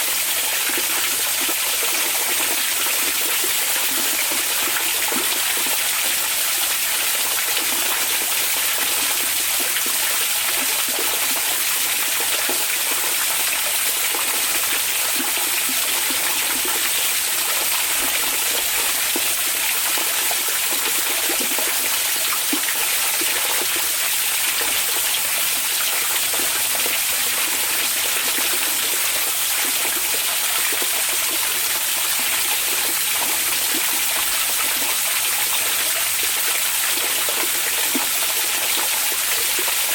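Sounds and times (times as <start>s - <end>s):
water gurgling: 0.0s - 39.9s
water running and splashing: 0.0s - 39.9s.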